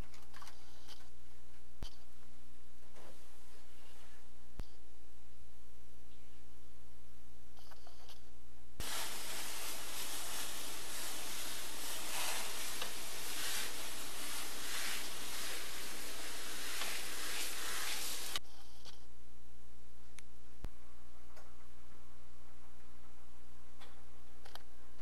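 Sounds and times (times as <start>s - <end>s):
faint low hum: 0.0s - 25.0s
hissing rush of noise: 8.8s - 18.4s.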